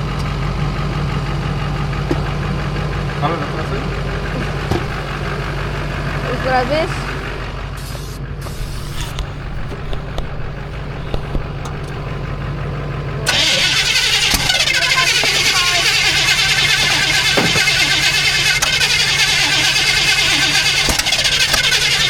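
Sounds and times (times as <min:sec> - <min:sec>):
truck engine starting: 0:00.0 - 0:22.0.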